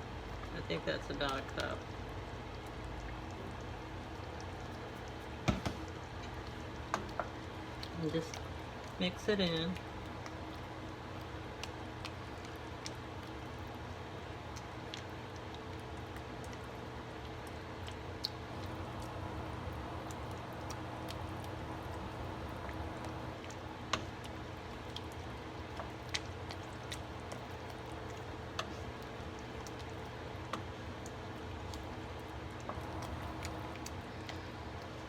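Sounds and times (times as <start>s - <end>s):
steady low hum: 16.4s - 35.0s.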